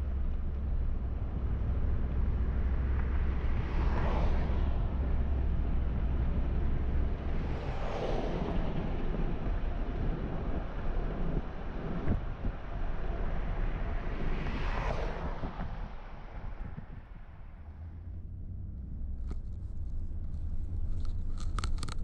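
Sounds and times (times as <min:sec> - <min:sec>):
wind noise: 0:00.0 - 0:17.9
car engine and tyres rumbling: 0:00.0 - 0:22.0
passing traffic whoosh: 0:01.1 - 0:22.0.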